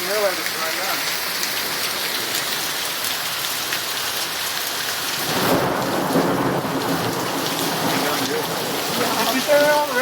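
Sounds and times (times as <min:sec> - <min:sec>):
heavy rain falling: 0:00.0 - 0:10.0
thunder rumbling: 0:05.2 - 0:10.0.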